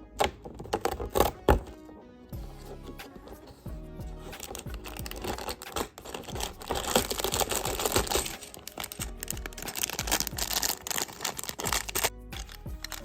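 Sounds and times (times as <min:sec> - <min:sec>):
packaging crinkling: 0:04.4 - 0:13.0
small plastic pieces clicking: 0:04.4 - 0:13.0.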